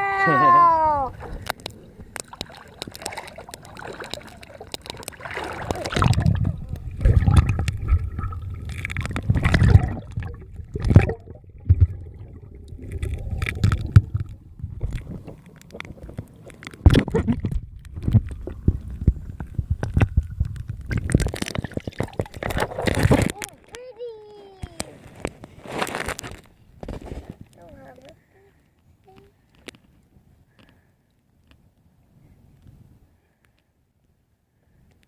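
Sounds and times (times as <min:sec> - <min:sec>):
water sloshing and splashing: 0:00.2 - 0:28.1.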